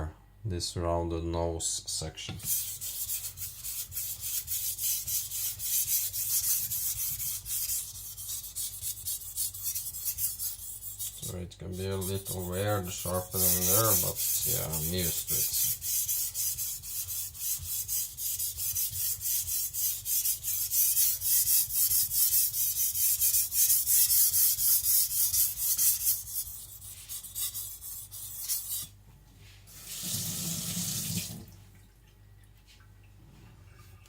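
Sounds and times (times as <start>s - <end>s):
knife rasping on whetstone: 2.4s - 28.9s.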